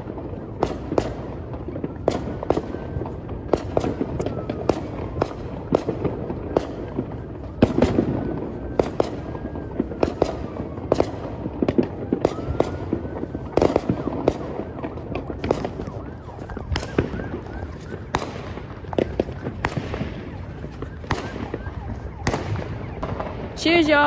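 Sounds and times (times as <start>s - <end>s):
distant fireworks rumble: 0.0s - 24.0s
fireworks bangs and crackles: 0.0s - 24.0s
faint firework whistles: 11.8s - 23.6s.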